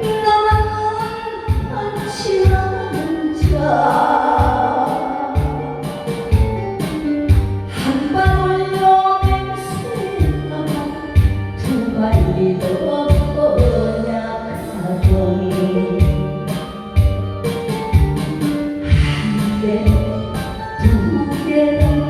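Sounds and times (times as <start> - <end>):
person singing: 0.0 - 6.3, 7.7 - 16.8, 18.8 - 22.0
backing band: 16.0 - 21.1
low drum strokes: 18.0 - 21.0.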